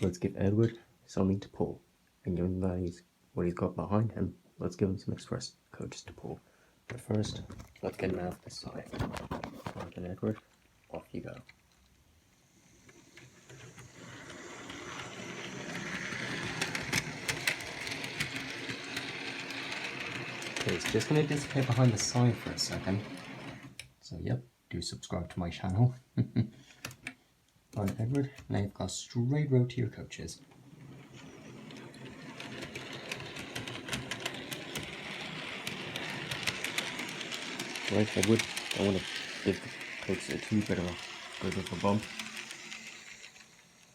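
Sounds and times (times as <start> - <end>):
model train running on track: 12.8 - 23.7, 31.0 - 43.9
wheels clicking on rails: 12.8 - 23.7, 30.4 - 43.9.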